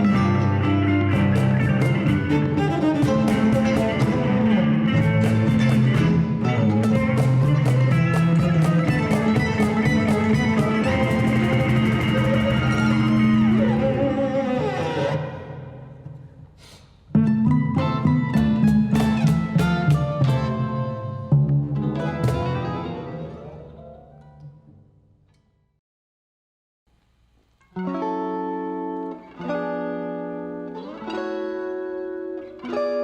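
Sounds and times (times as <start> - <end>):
mandolin: 0.0 - 15.4, 17.1 - 25.4
bowed cello: 0.0 - 16.1
guitar: 0.0 - 25.7, 27.6 - 33.0
quick rhythmic hits: 1.1 - 13.6, 18.3 - 20.6.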